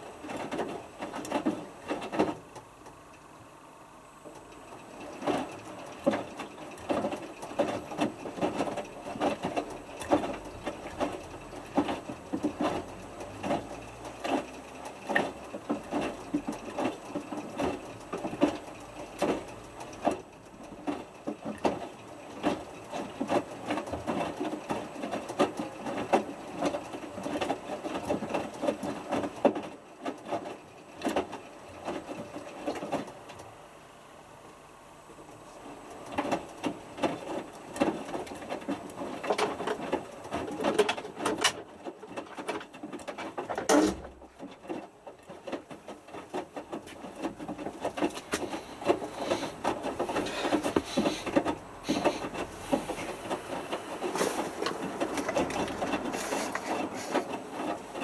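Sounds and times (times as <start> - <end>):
washing machine clicking: 35.9 - 58.0.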